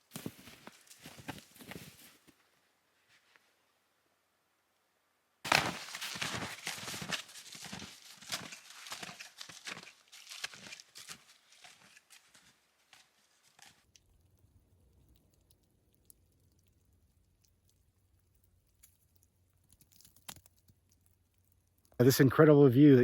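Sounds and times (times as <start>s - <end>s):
footsteps in deep snow: 0.0s - 2.4s, 5.5s - 13.8s.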